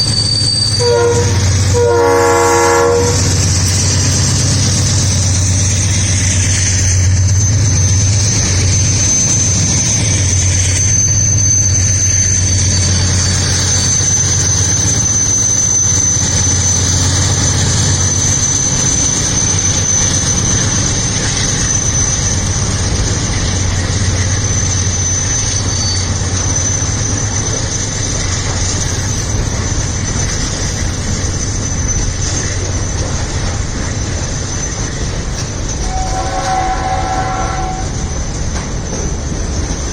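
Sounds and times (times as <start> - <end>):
diesel locomotive engine drone: 0.0 - 39.9
high wheel squeal: 0.0 - 39.9
train wheels rumbling: 0.0 - 39.9.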